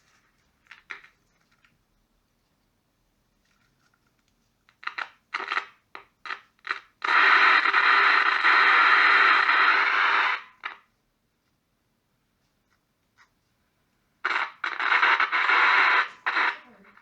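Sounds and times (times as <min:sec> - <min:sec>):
loud steady static hiss: 0:00.0 - 0:17.0
radio static crackles: 0:04.8 - 0:10.9, 0:14.2 - 0:17.0.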